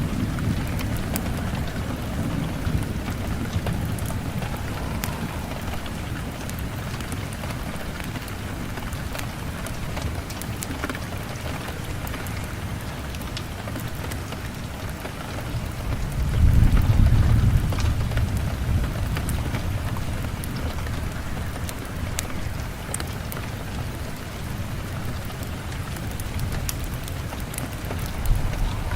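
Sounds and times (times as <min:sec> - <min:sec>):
fireplace crackling: 0:00.0 - 0:11.2, 0:26.2 - 0:28.9
low rumble of thunder: 0:00.0 - 0:12.4, 0:15.2 - 0:22.9, 0:26.1 - 0:28.9
steady rain: 0:00.0 - 0:28.9.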